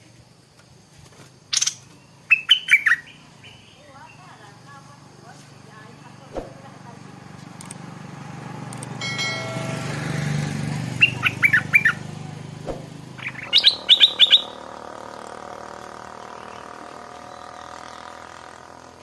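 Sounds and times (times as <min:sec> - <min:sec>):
low hum: 0:08.4 - 0:11.4
bird singing quick notes: 0:10.9 - 0:12.0, 0:12.7 - 0:14.7.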